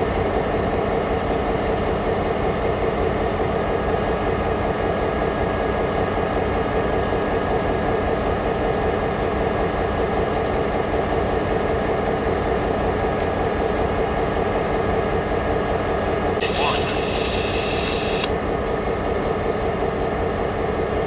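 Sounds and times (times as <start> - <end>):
railway equipment rumble: 0.1 - 21.0
faint humming tones: 16.4 - 18.3.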